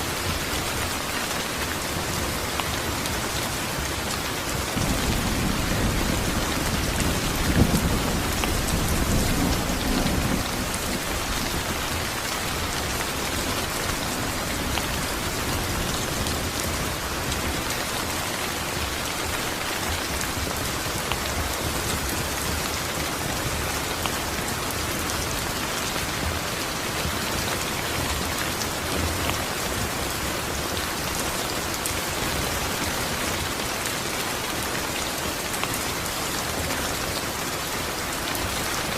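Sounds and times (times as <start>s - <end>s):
steady rain: 0.0s - 38.9s
low rumble of thunder: 4.8s - 12.2s.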